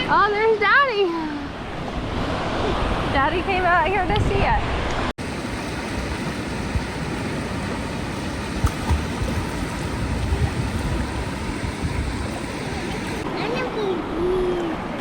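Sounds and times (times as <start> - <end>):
sea water sloshing in shallows: 5.2 - 13.2.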